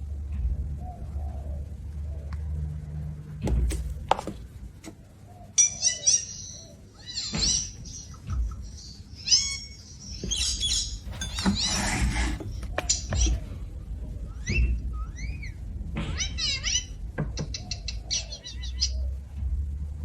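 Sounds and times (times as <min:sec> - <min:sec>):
bird chirping: 0:05.0 - 0:19.2.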